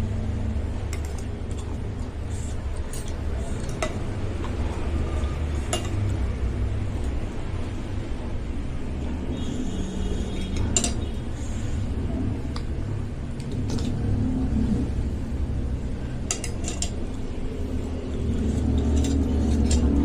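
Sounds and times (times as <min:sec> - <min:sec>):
cutlery clinking against bowl: 0:05.6 - 0:06.2, 0:10.5 - 0:11.1, 0:16.2 - 0:17.1, 0:18.4 - 0:20.0.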